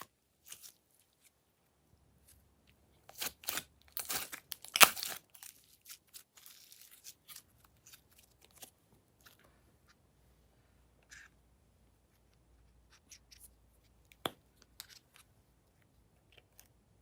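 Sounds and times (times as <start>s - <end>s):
crinkling and tearing handling noises: 3.0s - 9.5s.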